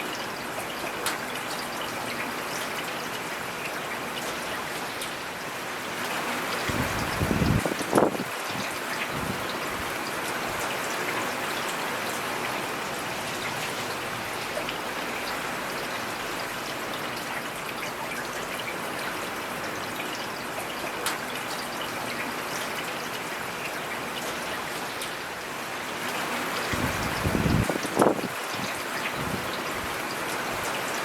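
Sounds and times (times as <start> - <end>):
rain falling: 0.0 - 31.0
water trickling: 5.8 - 25.5, 26.2 - 31.0.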